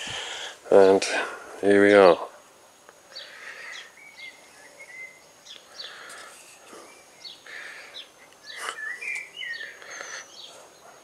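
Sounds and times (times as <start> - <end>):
garden birds chirping: 0.0 - 11.0
whistled bird notes: 3.2 - 10.8.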